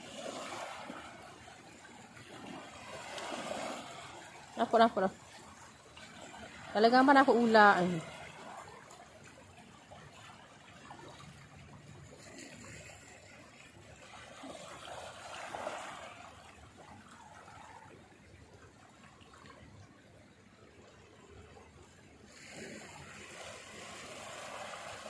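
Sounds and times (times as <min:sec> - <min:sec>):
water trickling and lapping: 0:00.0 - 0:25.0.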